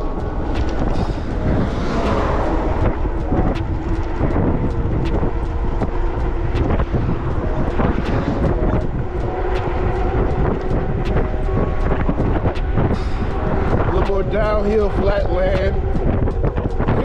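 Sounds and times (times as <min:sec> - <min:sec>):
tyres rumbling on road: 0:00.0 - 0:17.0
wind rushing over microphone: 0:00.0 - 0:17.0.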